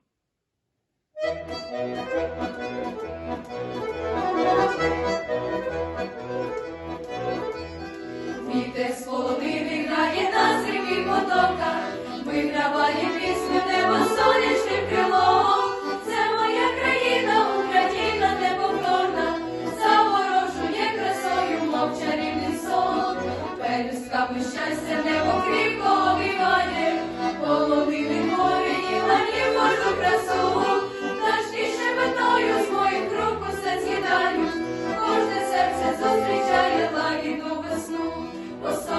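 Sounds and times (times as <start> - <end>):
instrumental accompaniment: 1.2 - 38.9
group of teenagers singing: 8.4 - 38.9.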